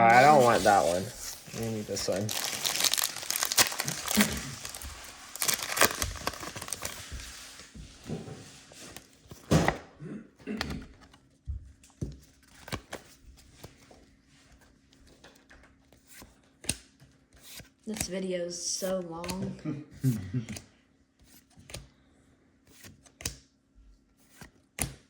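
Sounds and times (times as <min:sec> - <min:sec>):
foil wrapper crinkling: 0:00.1 - 0:07.7.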